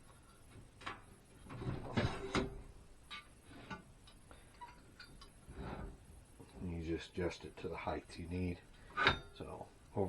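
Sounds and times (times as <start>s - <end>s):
saw extension sliding scrape: 5.5s - 6.0s.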